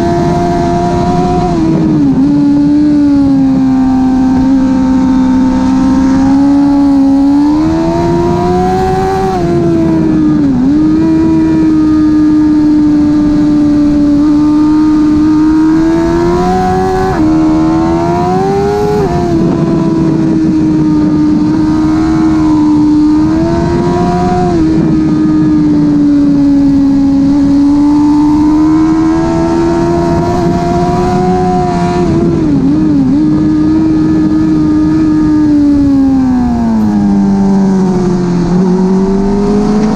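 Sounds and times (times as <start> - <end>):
motorcycle engine at high revs: 0.0 - 39.9
quickshifter upshifts: 0.0 - 39.9.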